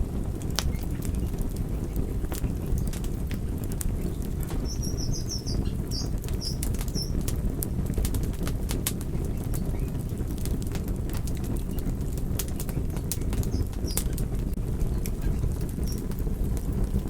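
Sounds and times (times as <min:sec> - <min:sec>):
low rumble of flames: 0:00.0 - 0:17.0
wood fire crackling and popping: 0:00.0 - 0:17.0
high chirps: 0:04.6 - 0:07.2.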